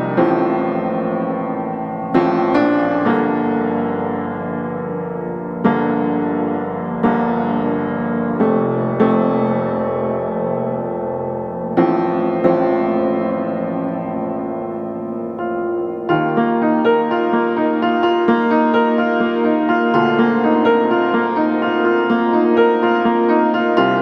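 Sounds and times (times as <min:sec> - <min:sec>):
slow piano music: 0:00.0 - 0:24.0.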